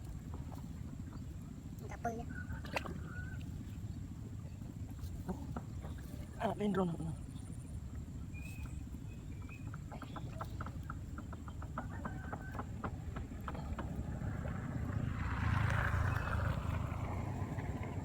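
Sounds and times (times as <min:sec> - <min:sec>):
steady low rumble: 0:13.0 - 0:18.0.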